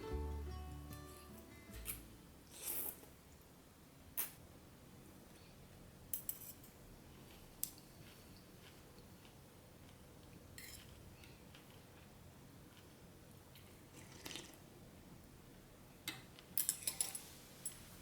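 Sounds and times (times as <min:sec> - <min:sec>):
soft brushing sound: 0:17.1 - 0:18.0.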